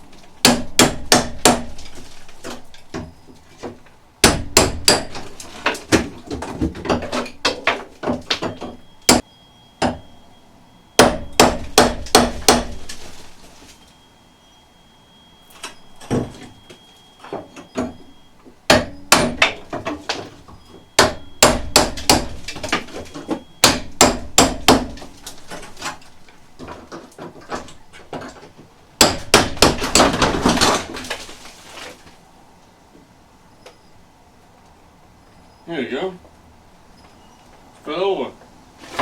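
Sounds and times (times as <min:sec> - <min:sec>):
hammer striking metal roof: 0:00.4 - 0:10.2, 0:11.0 - 0:13.0, 0:17.2 - 0:20.3, 0:21.0 - 0:26.0, 0:29.0 - 0:30.9.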